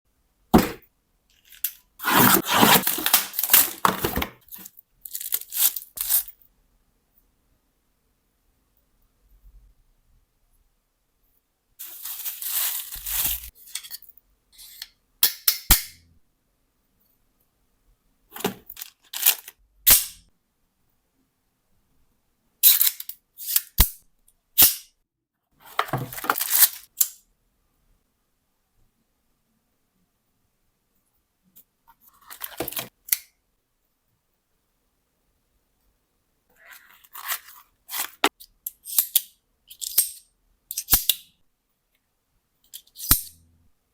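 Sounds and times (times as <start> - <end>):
packaging tearing and crinkling: 2.0 - 6.3, 11.8 - 13.5, 26.1 - 26.9
scraping rustles: 2.0 - 6.3, 11.8 - 13.5.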